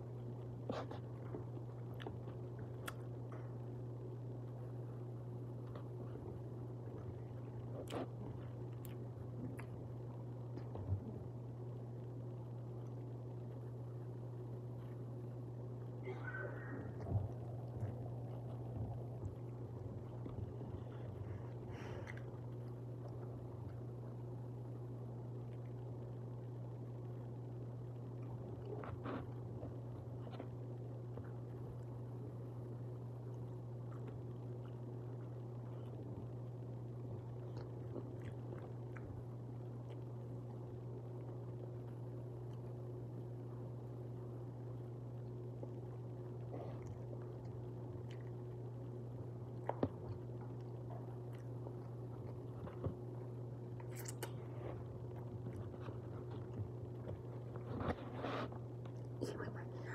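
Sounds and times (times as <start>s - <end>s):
low hum: 0.0s - 59.9s
faint wet clicks: 0.3s - 3.5s
person chewing food: 0.3s - 3.7s, 5.6s - 11.1s, 33.1s - 43.0s, 45.0s - 59.2s.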